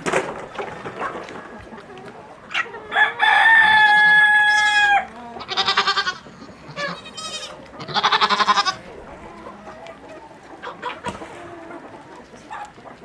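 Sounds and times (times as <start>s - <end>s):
wavering farm animal calls: 0.5s - 13.0s
rooster crowing: 2.9s - 5.1s.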